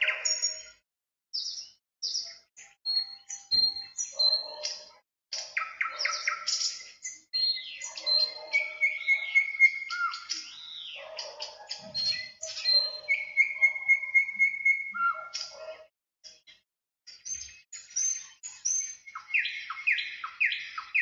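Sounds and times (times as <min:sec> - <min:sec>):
songbirds singing: 0:00.0 - 0:00.8, 0:01.4 - 0:21.0
lower warbling bird call: 0:07.6 - 0:11.0, 0:11.9 - 0:15.4.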